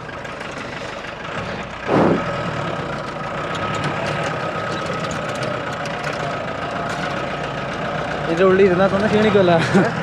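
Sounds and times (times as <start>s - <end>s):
car engine running: 0.0s - 10.0s
small rattles and clicks: 3.0s - 7.4s.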